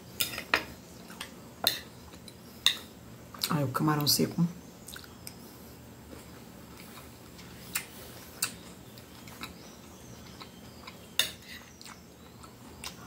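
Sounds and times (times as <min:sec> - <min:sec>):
person chewing food: 0:04.9 - 0:13.0.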